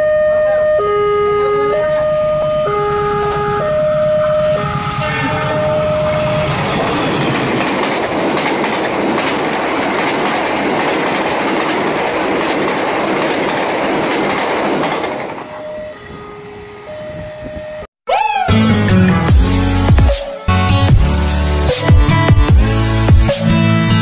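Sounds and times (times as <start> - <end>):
two-tone crossing alarm: 0.0 - 7.6, 15.3 - 17.9
train wheels rumbling on rails: 1.9 - 16.1
clickety-clack over rail joints: 5.4 - 15.6.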